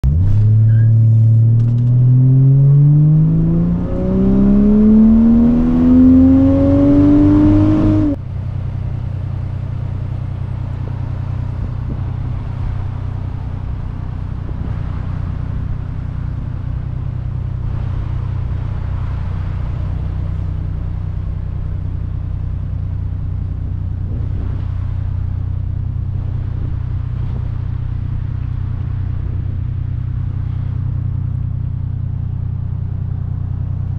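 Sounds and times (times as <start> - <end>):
car engine revving: 0.0 - 8.3
car engine idling: 0.0 - 33.9.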